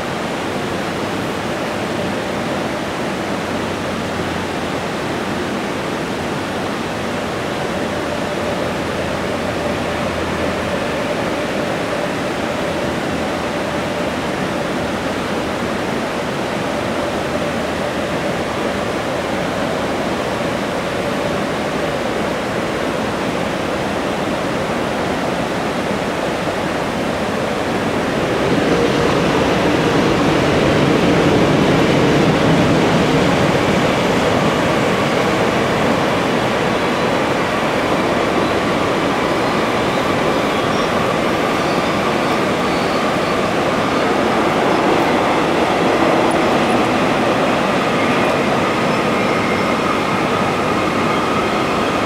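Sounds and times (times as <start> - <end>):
freight train rumble: 0.0 - 52.0.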